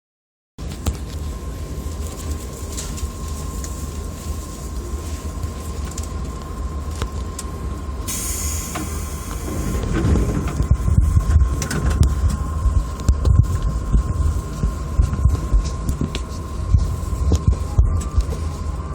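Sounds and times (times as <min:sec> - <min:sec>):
thin steady whine: 0:00.6 - 0:18.9
train interior rumble: 0:00.6 - 0:18.9
short hiss of air: 0:08.1 - 0:10.0.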